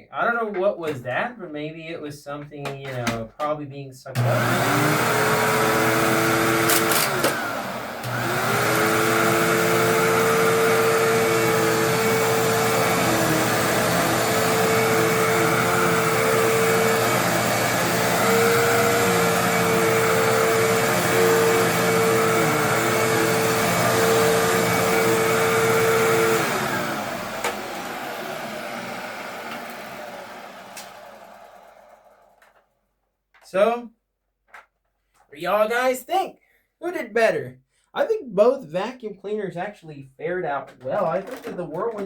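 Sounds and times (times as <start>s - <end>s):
upright vacuum cleaner running: 4.2s - 32.6s.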